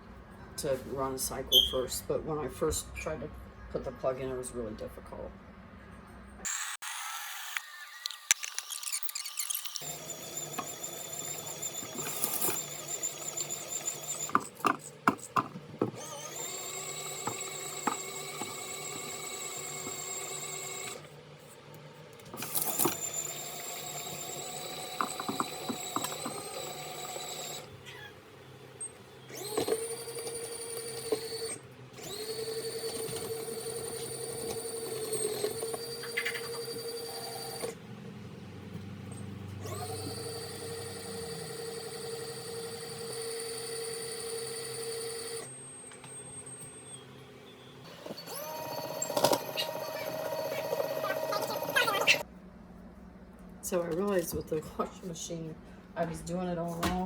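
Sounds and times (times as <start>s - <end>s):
washing machine motor whine: 9.1s - 52.3s.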